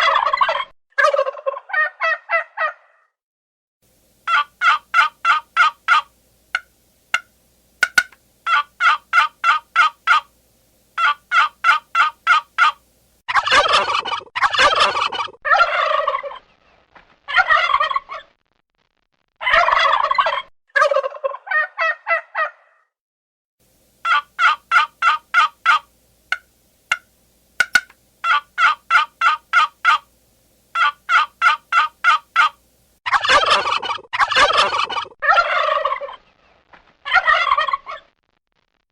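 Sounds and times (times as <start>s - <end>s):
turkey rattling gobbles: 4.2s - 10.3s, 11.0s - 12.8s, 13.4s - 16.4s, 19.5s - 21.4s, 24.0s - 30.1s, 30.7s - 36.2s
turkeys calling: 4.2s - 10.3s, 11.0s - 12.8s, 13.4s - 16.4s, 24.0s - 30.1s, 30.7s - 36.2s.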